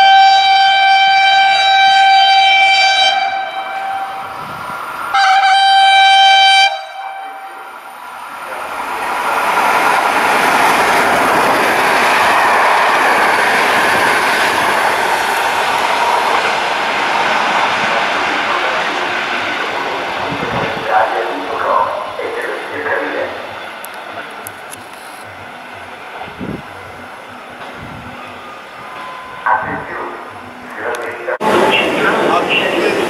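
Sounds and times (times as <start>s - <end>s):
train horn blasts: 0.0s - 4.5s, 5.1s - 7.8s
train wheels on rails: 1.4s - 29.5s, 30.3s - 33.0s.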